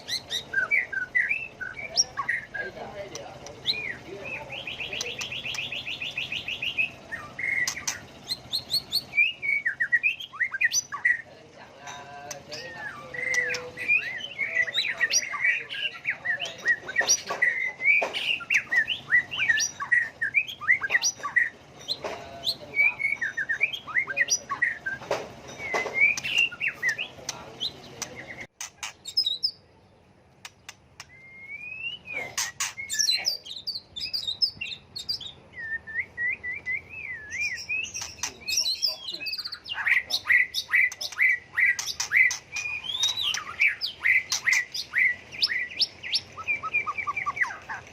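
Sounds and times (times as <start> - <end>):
bird singing whistled phrases: 0.0 - 2.6, 3.6 - 11.2, 17.4 - 21.5, 22.5 - 25.0, 25.6 - 27.1, 31.0 - 47.8.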